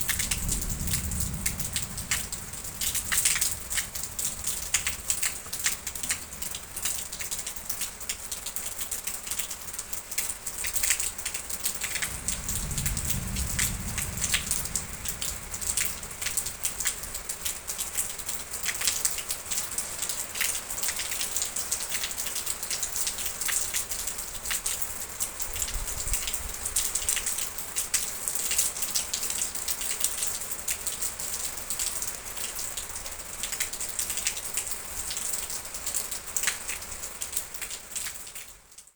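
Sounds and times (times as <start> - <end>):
rain hissing on a surface: 0.0 - 38.9
raindrops ticking: 0.0 - 38.9
soft low rumble: 11.8 - 17.6.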